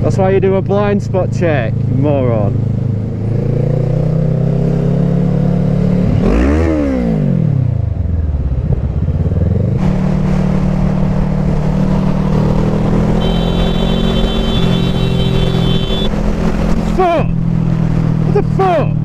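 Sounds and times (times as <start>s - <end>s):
motorcycle engine running: 8.0s - 16.8s.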